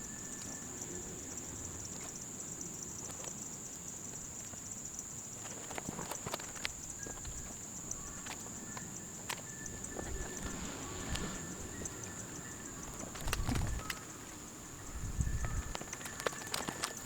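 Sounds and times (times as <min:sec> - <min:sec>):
high-pitched insect trill: 0:00.0 - 0:17.0.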